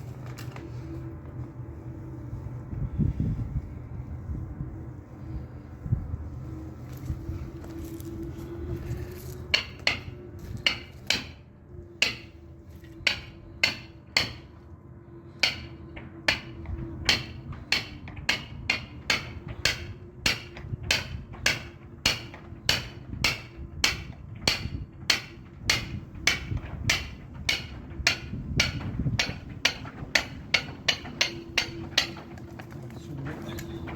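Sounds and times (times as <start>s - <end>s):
low hum: 0.0s - 33.9s
mallet striking caulking iron: 9.5s - 11.4s, 12.0s - 12.3s, 13.1s - 14.4s, 15.4s - 15.7s, 16.3s - 32.3s.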